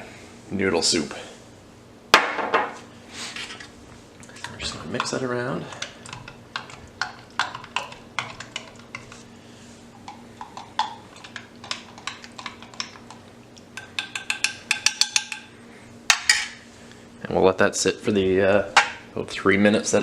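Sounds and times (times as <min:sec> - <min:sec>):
spoon clinking and scraping in cup: 0:10.1 - 0:13.2, 0:13.8 - 0:15.5.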